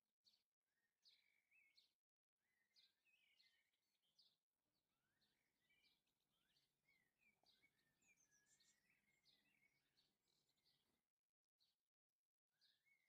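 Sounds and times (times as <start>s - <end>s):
songbird twittering: 0.3s - 1.9s, 2.5s - 4.4s, 5.0s - 10.9s.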